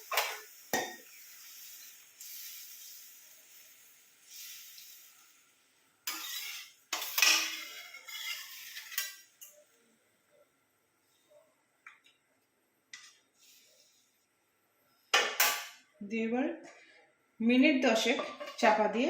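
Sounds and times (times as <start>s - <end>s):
curry hissing and simmering in pan: 0.0s - 15.9s
stirring and clatter in pan: 6.0s - 9.6s.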